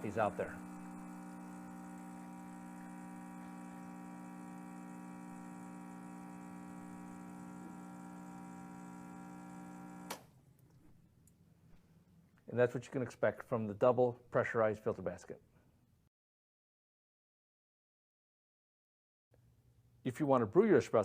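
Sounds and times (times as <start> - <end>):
espresso machine pump humming: 0.0 - 10.2.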